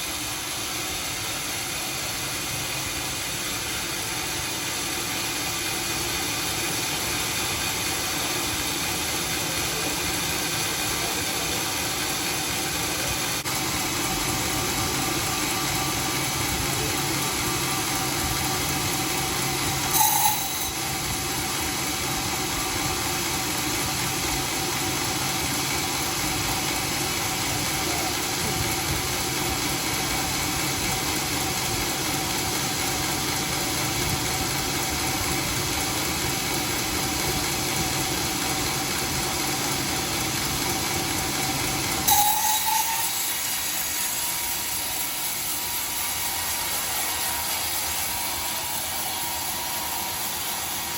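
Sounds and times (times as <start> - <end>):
sawmill running: 0.0 - 50.9
loud sharp sound: 19.9 - 20.8.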